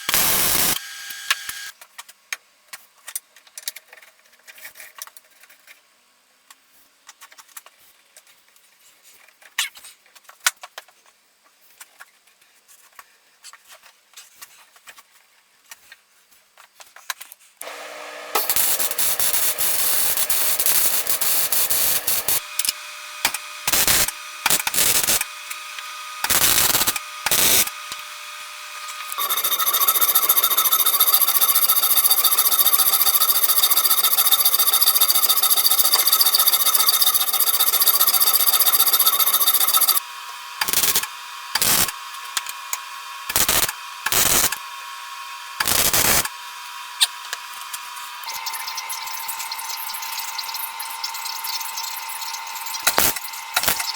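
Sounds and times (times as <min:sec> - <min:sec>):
power tool running: 0:00.0 - 0:01.7, 0:17.6 - 0:53.9.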